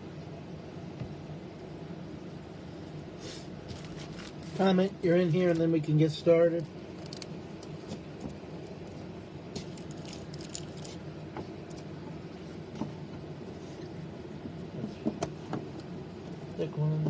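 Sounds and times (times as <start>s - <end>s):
low room hum: 0.0s - 17.0s
handling clicks and light rattles: 3.7s - 5.8s, 6.9s - 13.3s.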